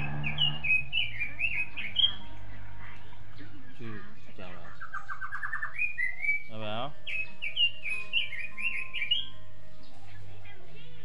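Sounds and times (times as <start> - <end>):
short rising whine: 0.0 - 1.2
songbirds chirping: 0.0 - 11.0.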